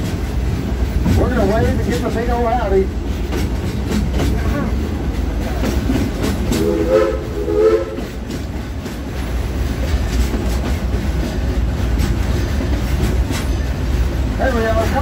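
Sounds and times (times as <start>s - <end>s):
train car rumbling on track: 0.0s - 15.0s
wheels clacking over rail joints: 0.0s - 15.0s
steam whistle blasts: 6.6s - 8.1s.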